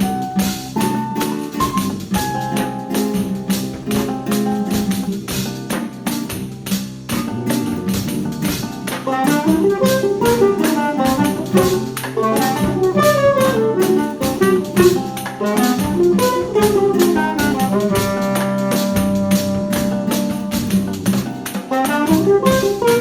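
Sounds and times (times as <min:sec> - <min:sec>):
hand percussion strokes: 0:00.0 - 0:23.0
plucked guitar accompaniment: 0:00.0 - 0:23.0
quick winding melody: 0:09.1 - 0:21.1.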